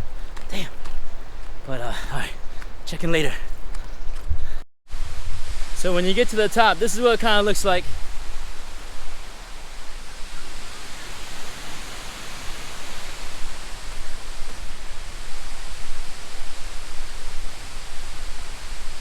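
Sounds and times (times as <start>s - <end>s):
waterfall rushing: 4.9s - 19.0s.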